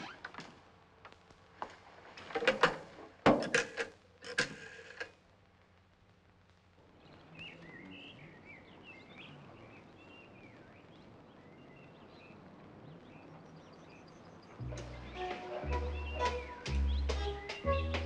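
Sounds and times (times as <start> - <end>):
faint birds chirping: 6.7 - 18.0.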